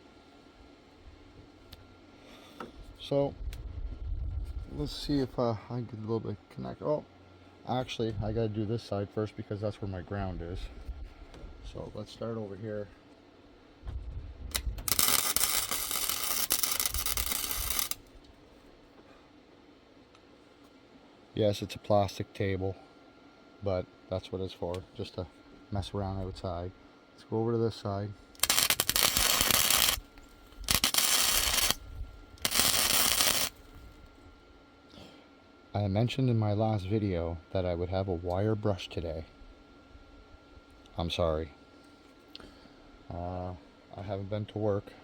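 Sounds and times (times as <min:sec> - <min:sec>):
welding arc crackling: 0:14.5 - 0:18.1, 0:28.4 - 0:33.9.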